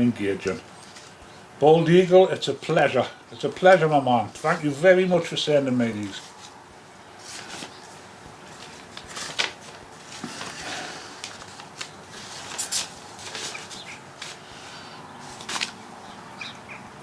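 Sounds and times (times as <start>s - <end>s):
paper rustling and clicking: 7.2s - 14.4s, 15.3s - 15.8s.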